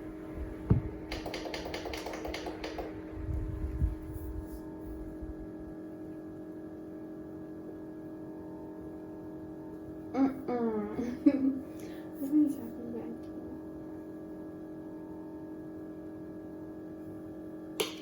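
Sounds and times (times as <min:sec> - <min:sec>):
steady hum: 0:00.0 - 0:18.0
sharp clicks: 0:01.1 - 0:02.9.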